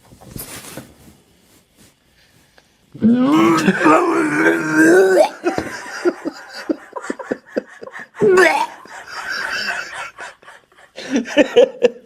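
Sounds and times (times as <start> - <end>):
loud rising cry: 3.0 - 5.5, 8.2 - 9.8
people laughing and exclaiming: 3.3 - 12.0.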